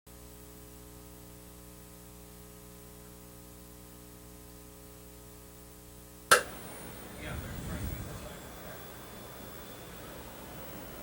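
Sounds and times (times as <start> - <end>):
electrical mains hum: 0.1 - 11.0
constant hiss: 5.0 - 11.0.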